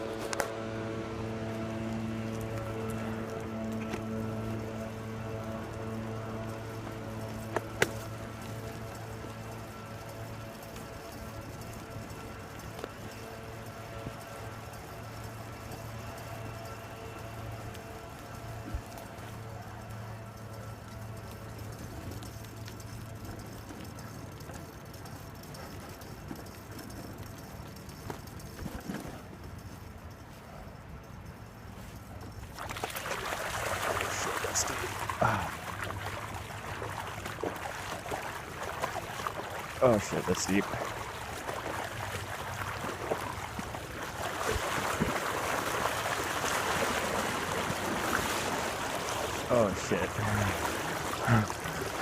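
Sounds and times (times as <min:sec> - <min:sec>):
bike tyres rattling on rough trail: 0:00.0 - 0:52.0
low hum: 0:00.0 - 0:52.0
bike wheels splashing through water: 0:32.4 - 0:52.0.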